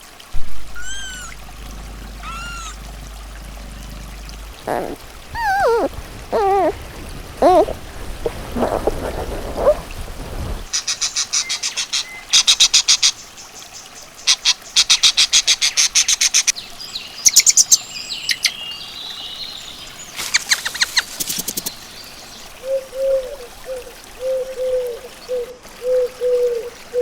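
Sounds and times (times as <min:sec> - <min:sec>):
sliding whistled bird notes: 0:00.8 - 0:03.2
small bird chirping: 0:00.8 - 0:06.8.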